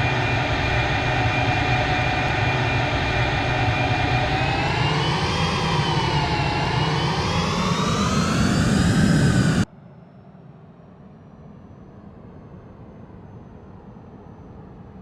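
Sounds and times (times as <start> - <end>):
jet engines roaring and whining: 0.0 - 9.7.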